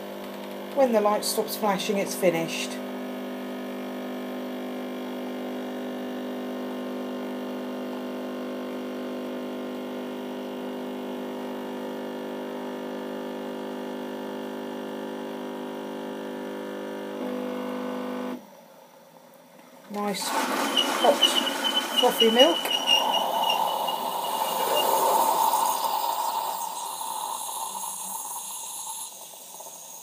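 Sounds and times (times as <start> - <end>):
coffee machine pump humming: 0.2 - 17.7, 20.0 - 30.0.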